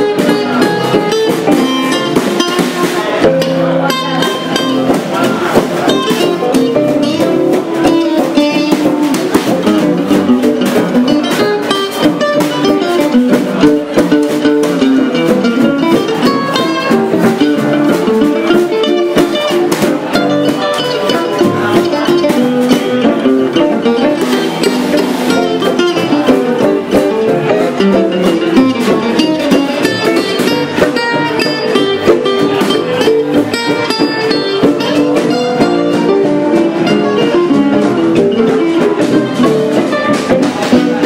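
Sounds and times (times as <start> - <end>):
gypsy jazz guitars playing: 0.0 - 41.0.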